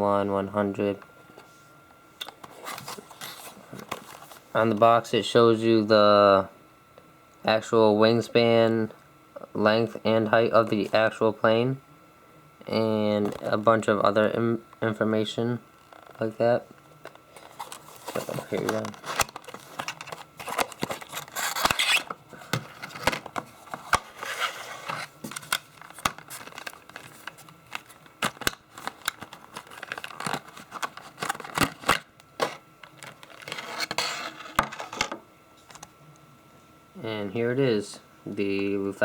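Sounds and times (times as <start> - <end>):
plastic packing crinkling: 17.0 - 34.2.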